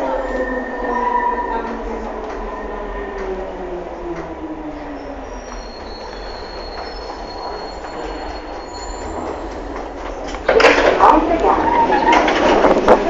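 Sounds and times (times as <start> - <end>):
train wheels rumbling on rail: 0.0 - 13.0
high wheel squeal: 5.0 - 9.5.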